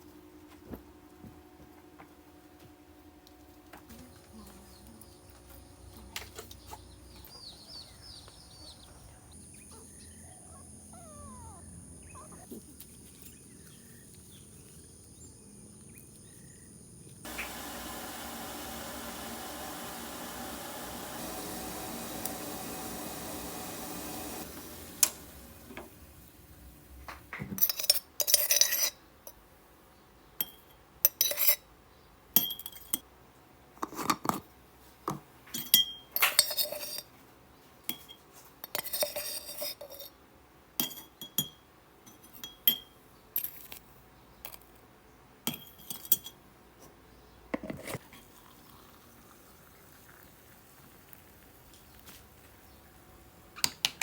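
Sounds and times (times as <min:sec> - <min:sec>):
dishes and utensils clinking: 0:27.4 - 0:29.0, 0:30.4 - 0:31.6, 0:32.4 - 0:33.0, 0:35.1 - 0:37.1, 0:37.9 - 0:40.2, 0:40.8 - 0:43.8, 0:45.5 - 0:46.4.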